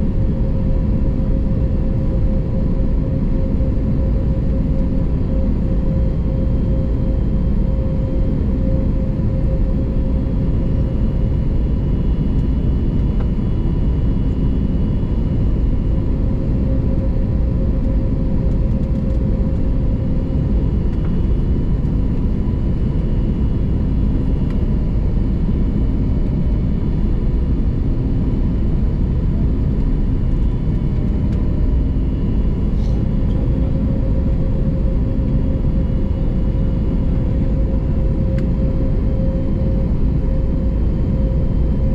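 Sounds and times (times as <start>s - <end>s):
airliner cabin engine rumble: 0.0s - 41.9s.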